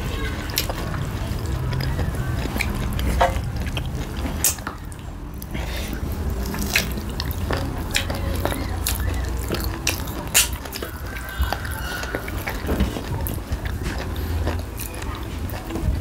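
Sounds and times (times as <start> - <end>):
wet chewing and lip-smacking: 0.0 - 16.0.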